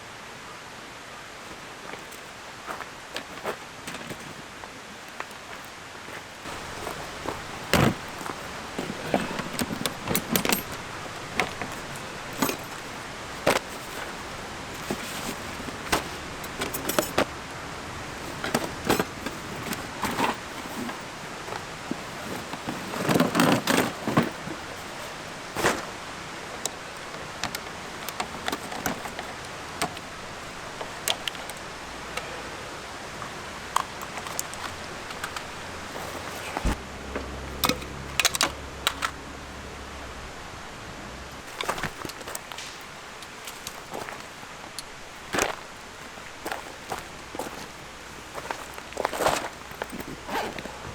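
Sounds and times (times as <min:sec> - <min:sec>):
steady background hiss: 0:00.0 - 0:50.9
metallic clinks and knocks: 0:06.5 - 0:17.3.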